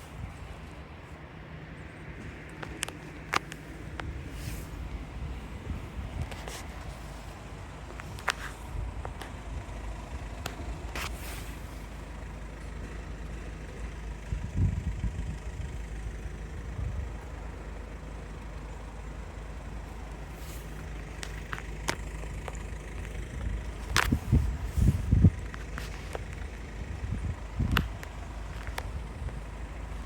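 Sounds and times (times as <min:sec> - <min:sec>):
motor vehicles rumbling: 0:00.0 - 0:30.0.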